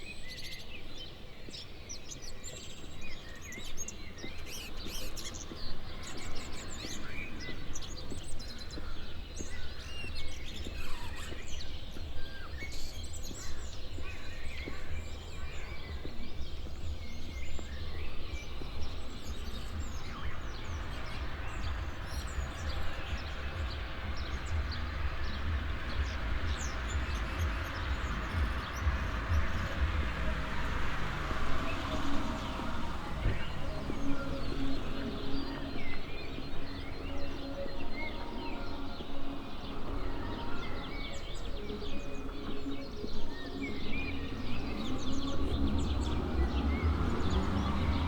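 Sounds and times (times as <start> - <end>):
songbirds chirping and singing: 0.0 - 48.0
steady low rumble: 15.0 - 36.1.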